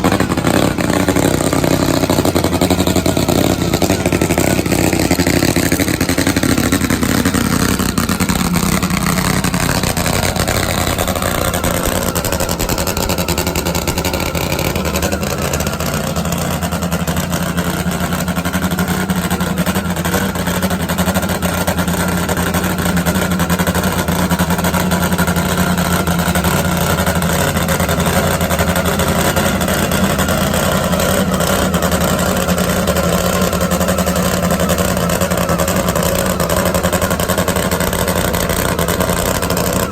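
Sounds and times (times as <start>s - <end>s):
loud drag motorcycle engine: 0.0s - 39.9s.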